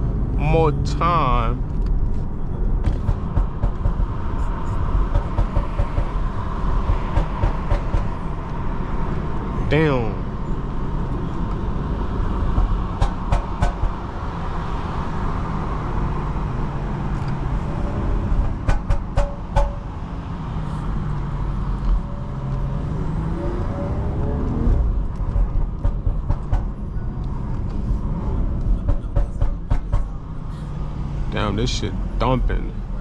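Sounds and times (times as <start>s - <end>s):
car engine and road rumble: 0.0s - 33.0s
engine revving up: 22.6s - 25.0s.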